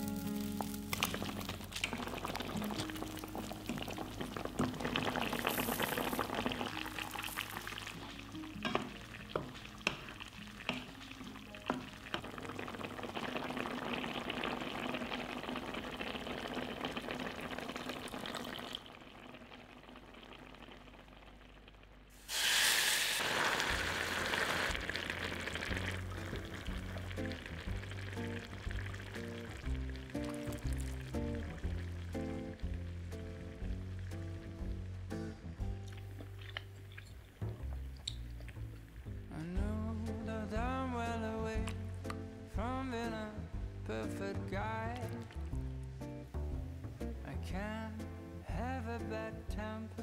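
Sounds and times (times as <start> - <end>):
food sizzling in a wok: 0.0 - 18.4, 22.1 - 33.9
loud hiss: 22.1 - 24.8.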